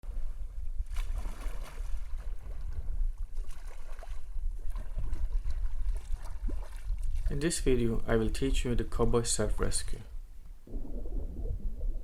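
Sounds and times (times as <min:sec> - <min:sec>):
water splashing around kayak: 0:00.0 - 0:07.6
steady low rumble: 0:07.9 - 0:12.0.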